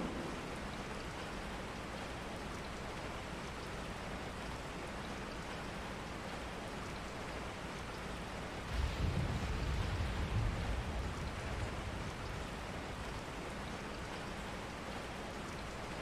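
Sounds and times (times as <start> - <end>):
steady rain patter: 0.0 - 16.0.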